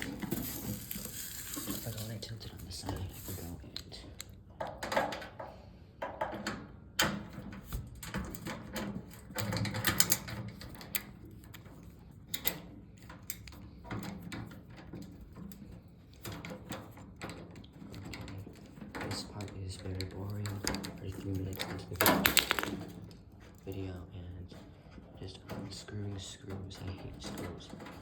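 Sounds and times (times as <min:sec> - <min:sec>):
screws unscrewed from sheet metal: 0:00.0 - 0:03.6.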